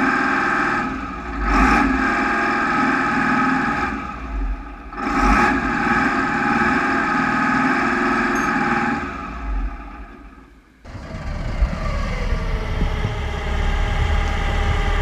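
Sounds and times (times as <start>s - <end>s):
excavator diesel engine running: 0.0s - 15.0s
falling whine: 8.3s - 15.0s.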